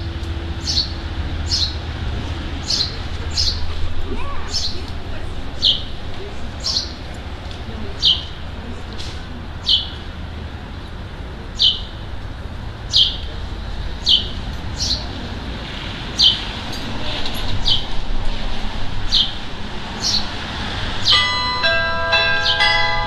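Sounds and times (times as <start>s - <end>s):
carillon bells ringing: 21.0s - 23.0s.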